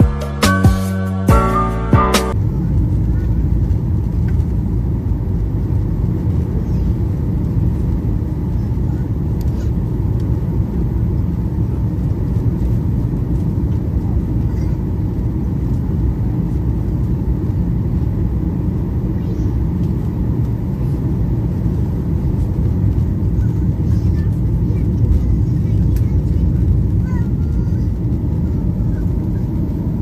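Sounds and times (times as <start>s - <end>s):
airliner cabin engine rumble: 1.3s - 30.0s.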